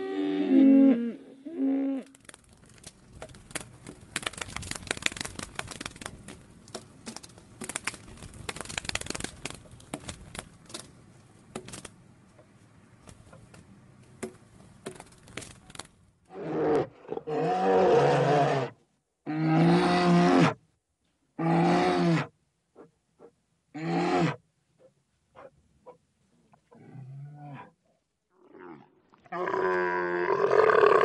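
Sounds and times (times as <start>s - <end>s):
faint clicks and crackles: 2.0s - 14.2s.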